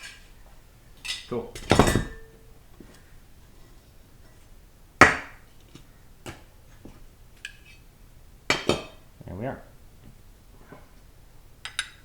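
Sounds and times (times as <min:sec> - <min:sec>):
metal part clanking on workbench: 0:01.1 - 0:02.4.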